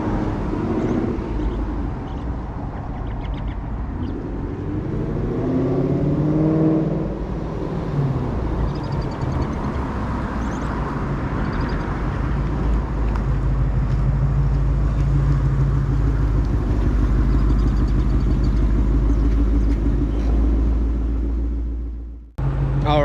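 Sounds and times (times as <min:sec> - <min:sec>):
car engine deep exhaust note: 0:12.9 - 0:23.0.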